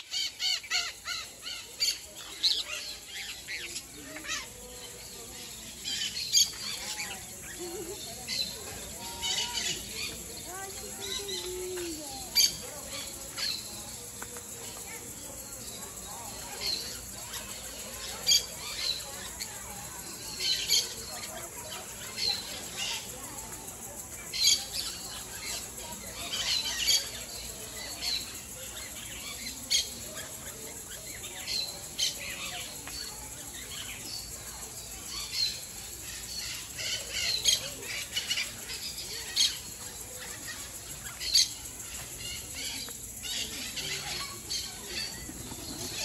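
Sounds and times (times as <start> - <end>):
birds chirping and squawking: 0.0 - 13.7, 35.0 - 46.0.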